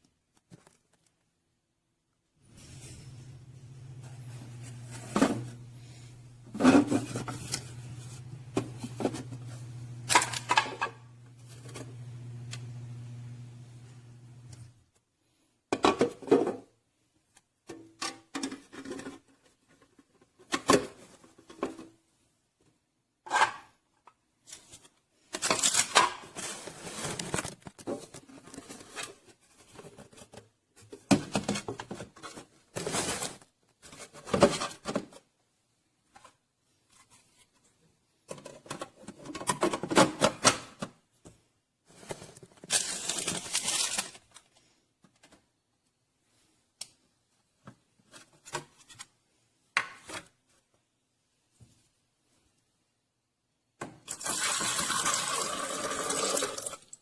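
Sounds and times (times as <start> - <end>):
objects being moved about: 2.4 - 12.0, 24.4 - 35.3, 41.8 - 45.5.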